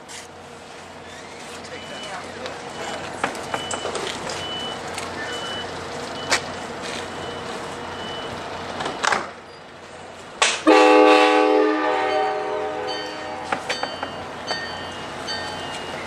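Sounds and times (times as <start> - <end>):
faint high beep: 1.7 - 6.4
locomotive air horn: 10.6 - 13.7.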